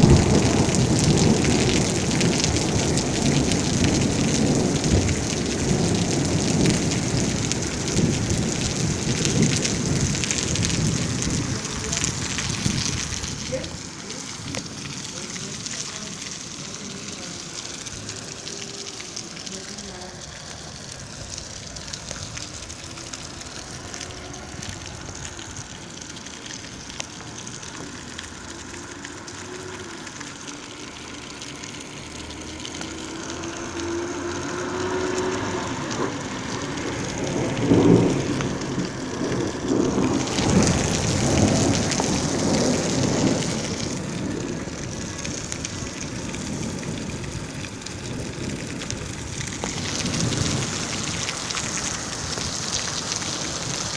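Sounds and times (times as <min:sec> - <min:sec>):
thunder rumbling: 0:00.0 - 0:18.6, 0:31.7 - 0:53.9
steady rain falling: 0:00.0 - 0:53.9.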